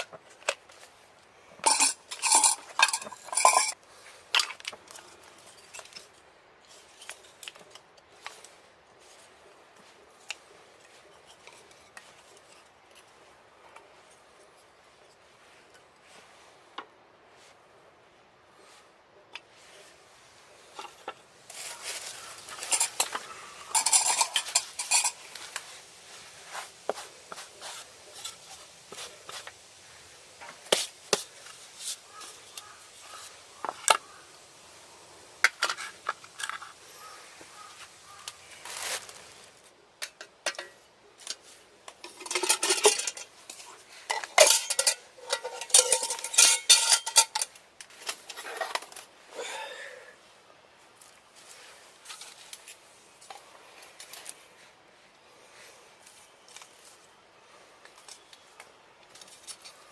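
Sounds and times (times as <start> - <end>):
metal cookware clinking and scraping: 1.6 - 3.8, 20.8 - 25.4, 40.0 - 41.4, 42.0 - 47.6.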